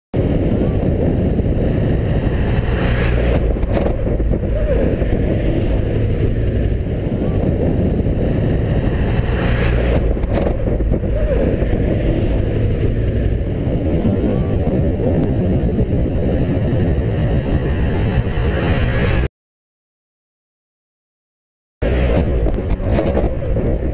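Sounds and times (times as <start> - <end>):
wind rushing on microphone: 0.2 - 19.3, 21.8 - 23.9
motorcycle engine running: 0.5 - 17.9.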